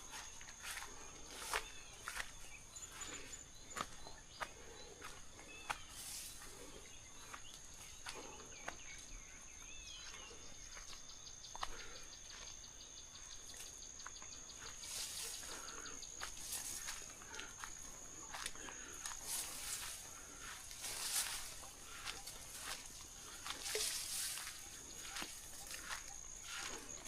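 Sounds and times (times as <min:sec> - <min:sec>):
birds chirping and calling: 0:00.1 - 0:27.0
high-pitched insect drone: 0:13.3 - 0:27.0.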